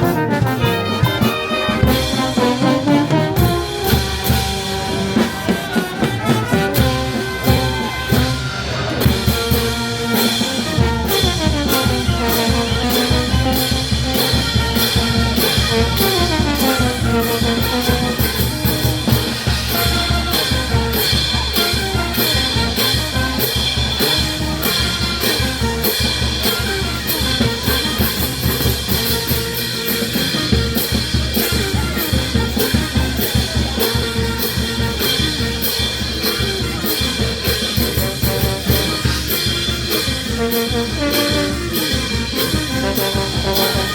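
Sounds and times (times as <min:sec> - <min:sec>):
drum and cymbal beat: 0:00.0 - 0:43.9
trumpets and trombones: 0:00.0 - 0:43.9.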